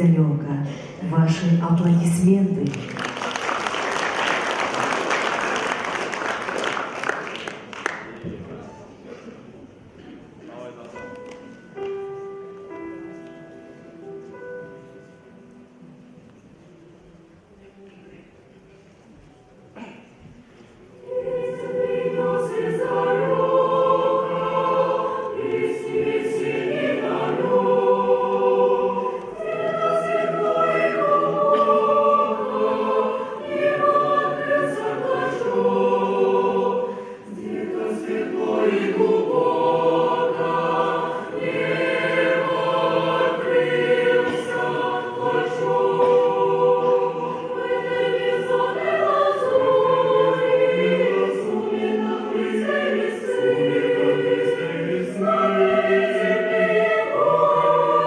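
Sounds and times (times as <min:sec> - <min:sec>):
mixed choir singing: 0:02.9 - 0:07.5, 0:19.8 - 0:58.0.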